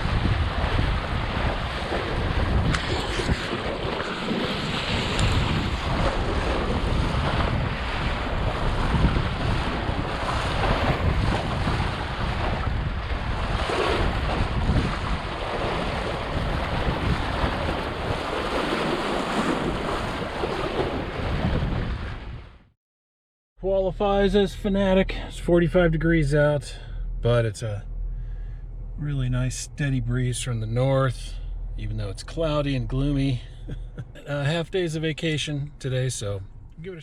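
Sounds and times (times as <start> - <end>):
water rushing along hull: 0.0 - 22.6
wind buffeting microphone: 0.0 - 22.7.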